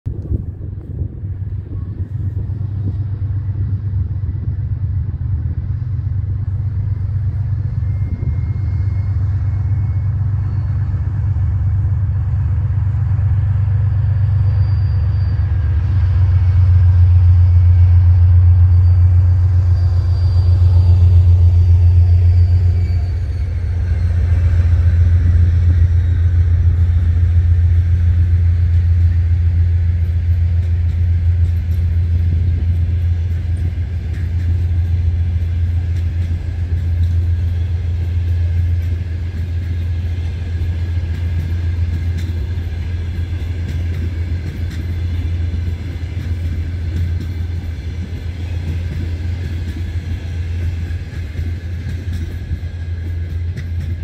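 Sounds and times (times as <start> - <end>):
diesel train rumbling past: 0.0 - 54.0.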